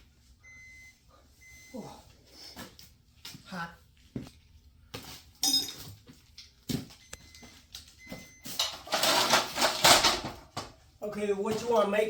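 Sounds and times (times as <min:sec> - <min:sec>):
hand tools and metal hardware clicking: 0:05.4 - 0:05.9.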